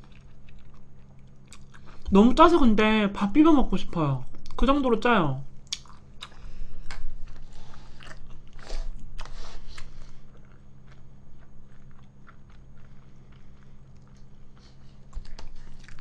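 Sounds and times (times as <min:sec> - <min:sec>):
chewing noodles: 0:00.0 - 0:02.1, 0:05.7 - 0:16.0
wet mouth clicks and smacks: 0:05.6 - 0:07.1.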